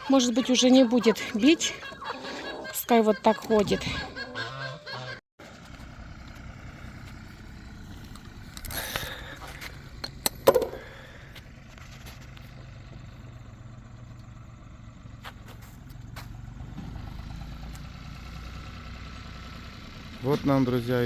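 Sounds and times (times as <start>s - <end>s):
vehicle engine idling: 5.4s - 21.0s.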